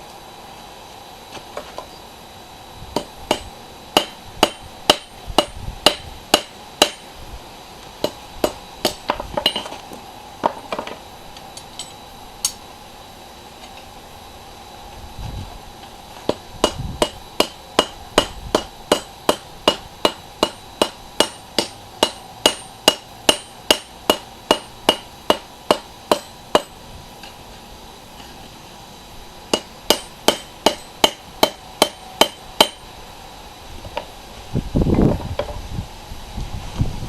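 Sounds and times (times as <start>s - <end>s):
hammer blows on anvil: 16.3s - 26.8s, 29.5s - 32.8s.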